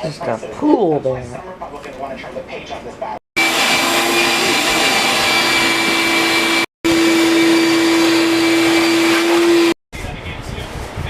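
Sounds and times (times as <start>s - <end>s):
vacuum motor humming: 3.4s - 9.8s.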